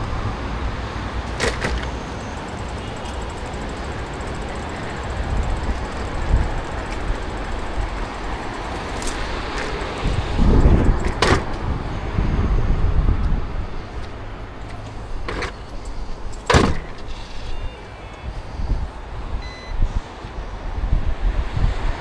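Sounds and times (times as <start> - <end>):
street traffic rumble: 0.0 - 22.0
vehicle passing: 0.9 - 12.3
sharp clicks or knocks: 1.3 - 11.9, 13.2 - 17.5.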